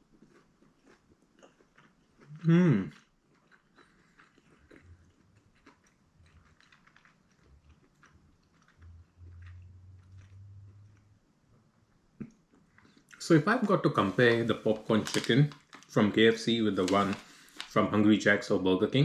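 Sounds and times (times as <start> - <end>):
person chewing crunchy food: 0.0 - 11.1
low steady hum: 4.6 - 19.0.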